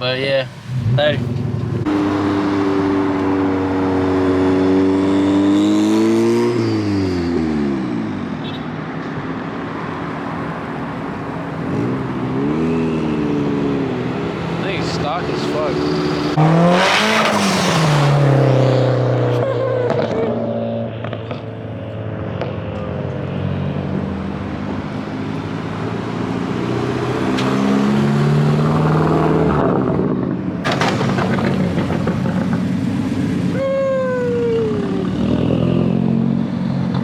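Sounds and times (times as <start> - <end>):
car engine revving: 0.0 - 8.5, 10.0 - 37.0
sharp crack: 30.6 - 33.0.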